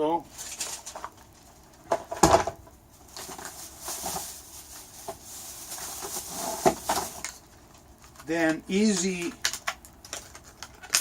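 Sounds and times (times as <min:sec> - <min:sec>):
rustling and handling noise: 0:00.2 - 0:11.0
items knocking on hard surface: 0:01.9 - 0:02.6.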